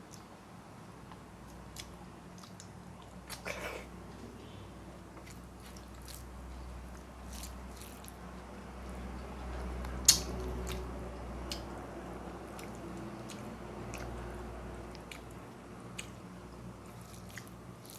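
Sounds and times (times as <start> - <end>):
person chewing and crunching: 1.4 - 3.9, 5.2 - 11.8, 12.4 - 16.2, 16.8 - 17.9.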